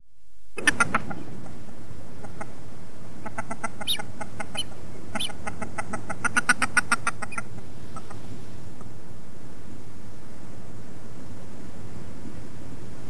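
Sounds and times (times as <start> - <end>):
background hiss: 0.0 - 13.0
bird clicking call: 0.6 - 1.6, 3.2 - 8.2.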